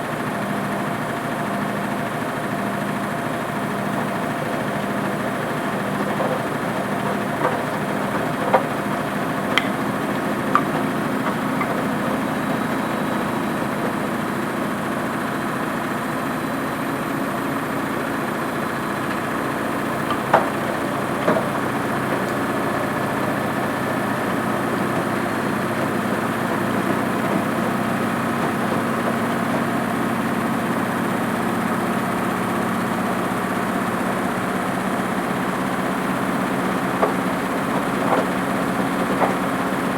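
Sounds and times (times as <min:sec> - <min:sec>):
washing machine motor hum: 0:00.0 - 0:39.9
items knocking in drum: 0:09.5 - 0:14.0.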